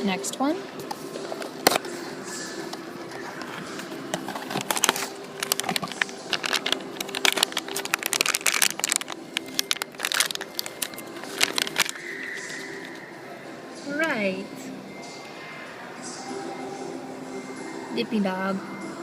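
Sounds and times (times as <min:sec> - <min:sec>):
packaging crinkling and tearing: 0:03.1 - 0:13.0.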